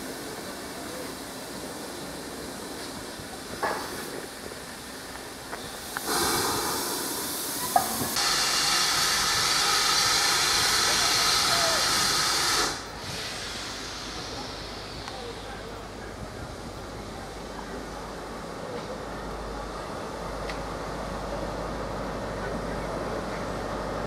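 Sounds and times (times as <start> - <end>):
hiss of escaping steam: 0.0 - 16.9.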